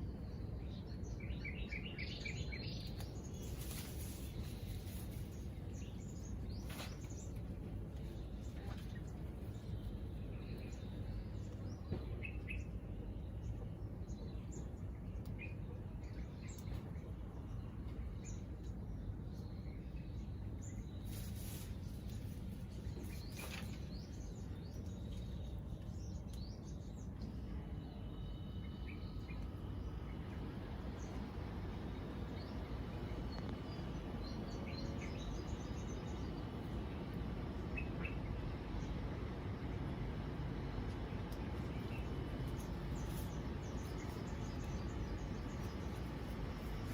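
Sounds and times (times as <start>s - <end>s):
low background rumble: 0.0s - 46.9s.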